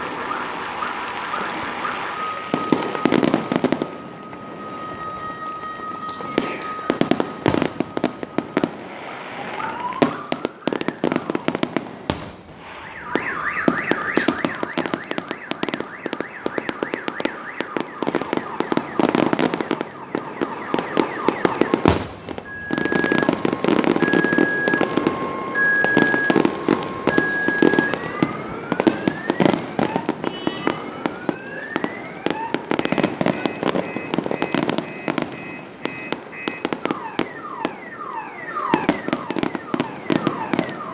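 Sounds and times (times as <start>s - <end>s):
firework bangs: 0.0s - 40.9s
fireworks crackling: 0.0s - 40.9s
rocket whistles: 12.1s - 17.6s, 30.2s - 30.9s.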